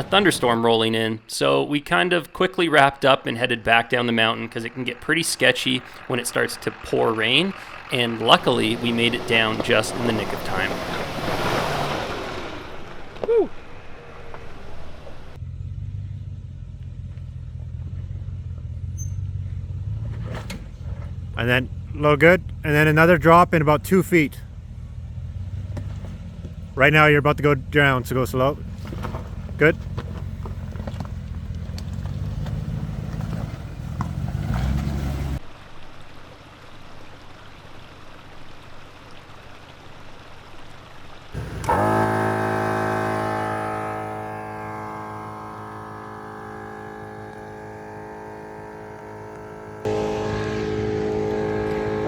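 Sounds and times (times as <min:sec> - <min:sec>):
engine low drone: 0:00.0 - 0:35.6, 0:41.1 - 0:52.0.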